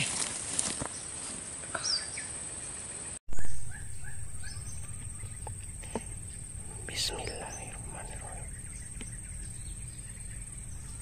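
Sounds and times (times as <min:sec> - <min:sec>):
birds chirping: 0:01.7 - 0:11.0
high-pitched insect drone: 0:03.3 - 0:11.0
low thump: 0:03.3 - 0:11.0.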